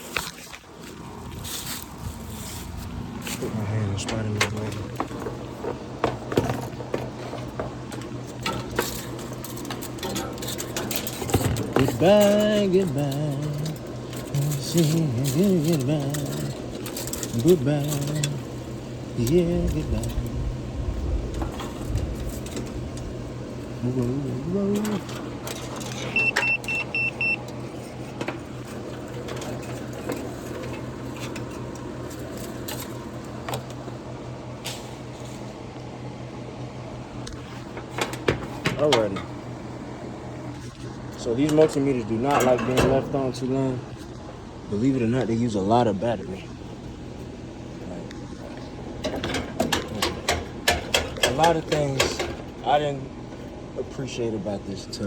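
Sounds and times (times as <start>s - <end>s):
steady low hum: 0.0s - 55.0s
objects clicking and rattling: 4.0s - 18.5s, 49.0s - 52.5s
multimeter high-pitched beeps: 26.2s - 27.4s.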